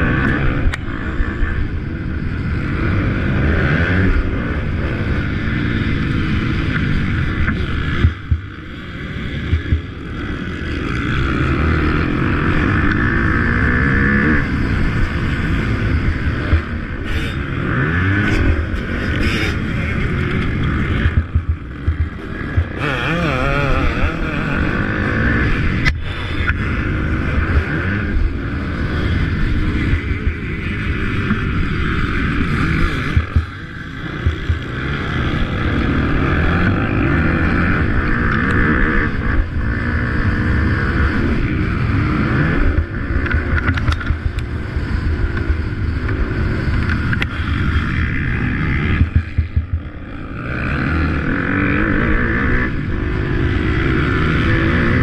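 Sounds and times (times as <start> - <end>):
motocross bike engines racing: 0.0 - 55.0
wind noise on microphone: 5.9 - 10.4, 15.1 - 36.6, 40.8 - 55.0.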